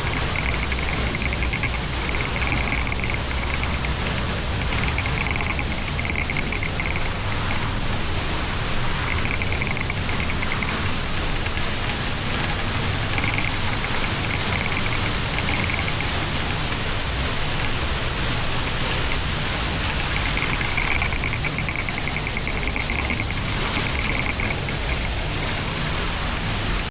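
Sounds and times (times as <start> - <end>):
waterfall pouring: 0.0 - 26.9
rapid high trill: 8.9 - 11.5, 18.9 - 25.5.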